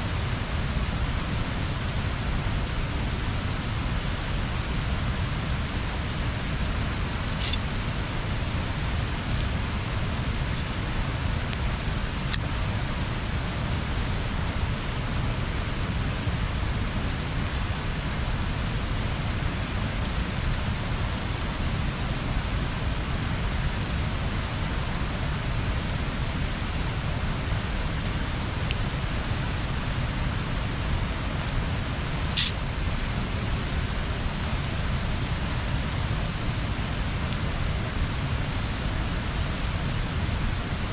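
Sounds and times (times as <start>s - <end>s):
bonfire hissing and crackling: 0.0s - 40.9s
fire pop: 32.3s - 32.7s.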